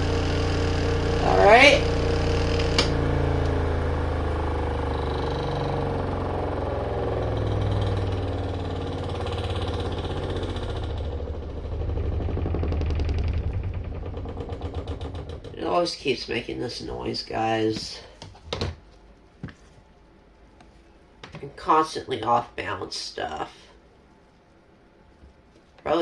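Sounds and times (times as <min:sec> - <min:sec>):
rapid even pulsing: 0:00.0 - 0:16.0
spin-dryer motor hum: 0:00.0 - 0:18.3.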